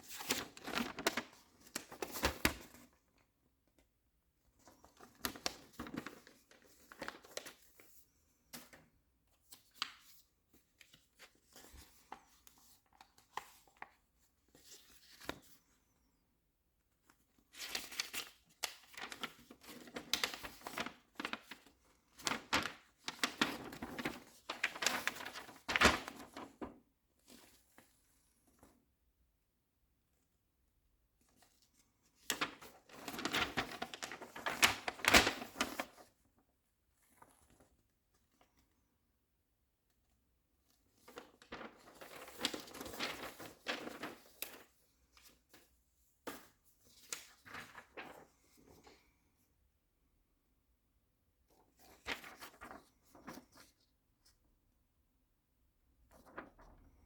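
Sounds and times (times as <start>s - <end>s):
packaging crinkling and rustling: 22.2s - 26.4s, 32.4s - 36.0s.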